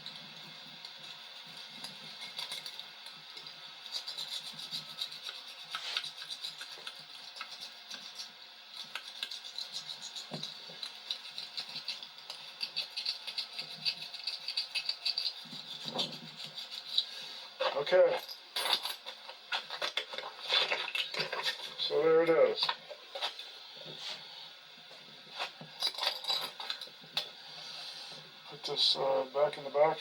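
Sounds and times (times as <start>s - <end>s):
rasp scraping rubber: 3.9s - 17.1s.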